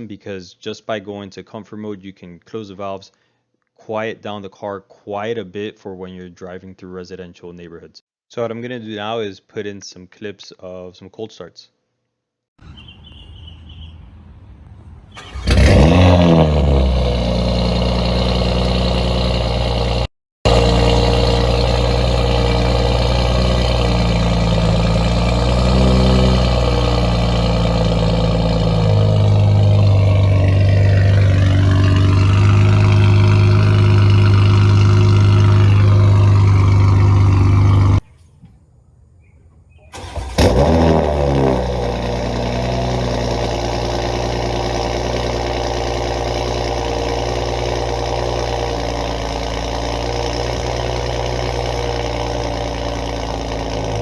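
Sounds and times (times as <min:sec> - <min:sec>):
car engine cold start: 0:15.1 - 0:38.3, 0:39.9 - 0:54.0
car engine fast idle: 0:15.2 - 0:38.0, 0:39.9 - 0:54.0.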